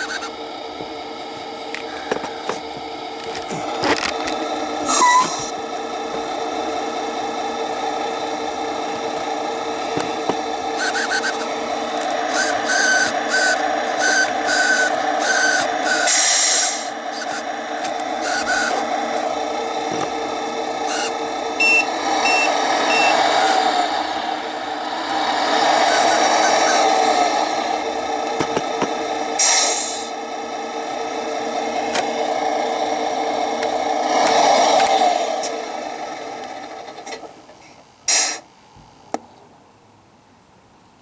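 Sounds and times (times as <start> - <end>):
toy truck motor and gear whine: 0.0 - 38.4
higher beeps: 21.6 - 23.2
reversing beeps: 21.6 - 23.2
air brake hiss: 29.4 - 30.1.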